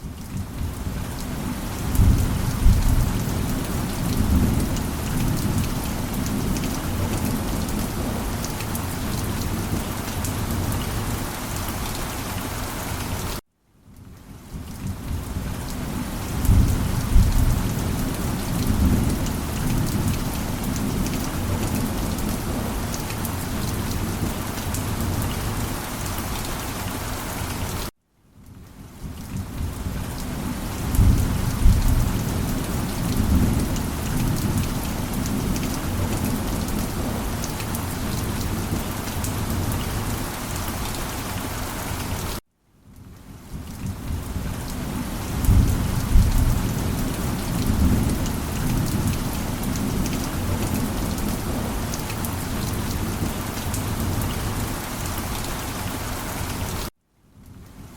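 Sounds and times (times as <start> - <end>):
heavy rain: 0.0 - 57.9
thunder rumbling: 1.8 - 8.2, 30.7 - 40.2, 45.3 - 54.6.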